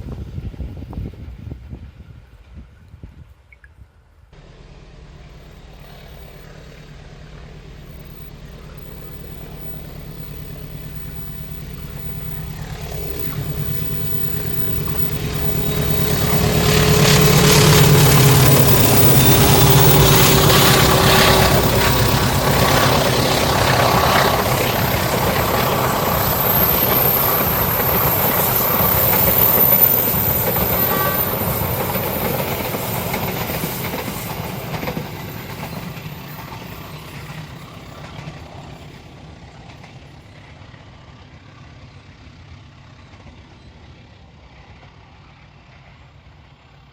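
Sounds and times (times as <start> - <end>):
locomotive engine hum: 4.4 - 42.6
tone dropping in pitch: 4.6 - 30.7.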